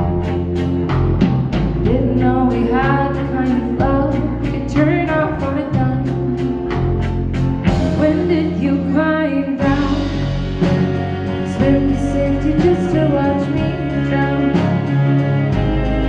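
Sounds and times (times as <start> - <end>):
rock band playing: 0.0 - 16.0
person singing: 7.8 - 16.0.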